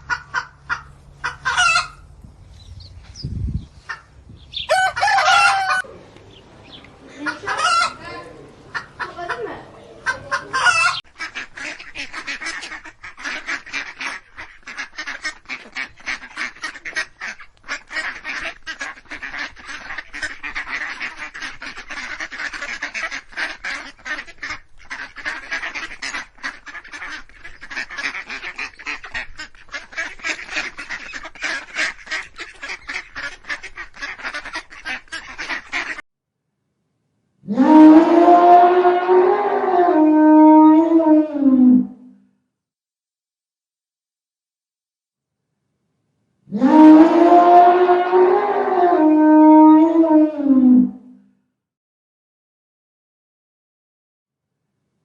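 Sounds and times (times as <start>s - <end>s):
waterfowl flock calling: 0.0s - 2.1s, 3.8s - 36.0s.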